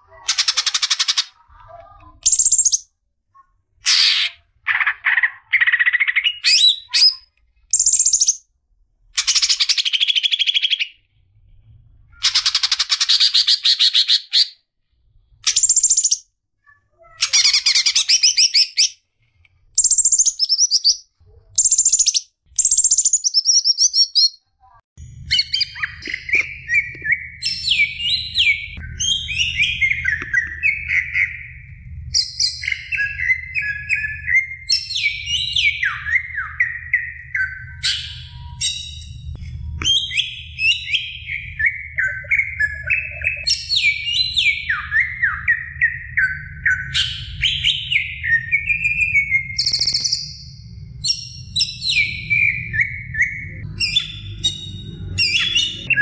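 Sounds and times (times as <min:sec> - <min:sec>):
bird warbling song: 0:02.3 - 0:02.9, 0:03.9 - 0:08.4, 0:15.4 - 0:16.2, 0:19.8 - 0:24.4, 0:25.2 - 0:39.0, 0:39.8 - 0:50.3
harsh high bird calls: 0:03.8 - 0:07.2, 0:19.8 - 0:24.4.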